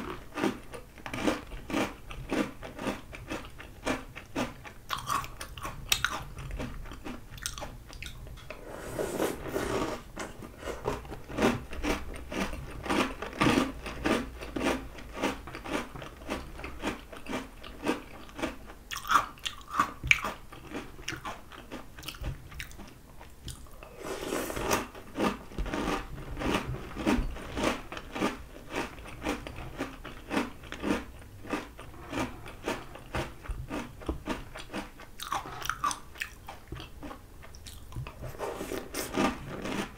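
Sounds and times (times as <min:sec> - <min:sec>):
chewing crunchy cereal: 0:00.0 - 0:08.6, 0:09.3 - 0:39.9.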